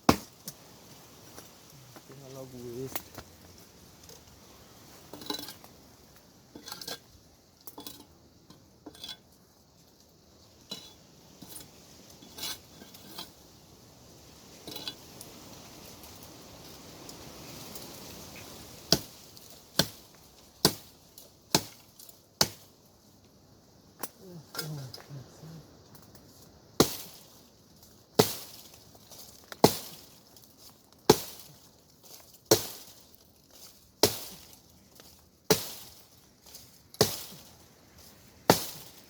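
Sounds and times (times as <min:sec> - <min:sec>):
axe chopping hard wood: 0:00.1 - 0:00.4, 0:19.8 - 0:20.0, 0:20.6 - 0:20.9, 0:21.5 - 0:21.8, 0:28.2 - 0:28.5, 0:31.1 - 0:31.4, 0:32.5 - 0:32.8, 0:34.0 - 0:34.4, 0:35.5 - 0:35.9, 0:37.0 - 0:37.3, 0:38.5 - 0:38.9.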